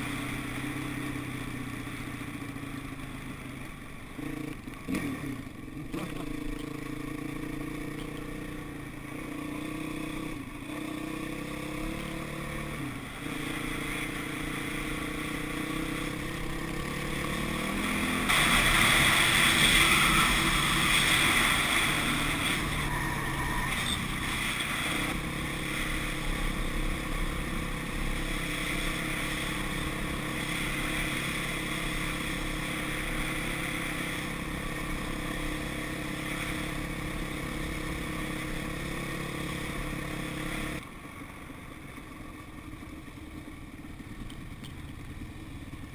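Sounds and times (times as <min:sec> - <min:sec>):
dirt bike engine revving: 0:04.2 - 0:08.6, 0:09.2 - 0:40.8
loud rushing noise: 0:17.4 - 0:25.2.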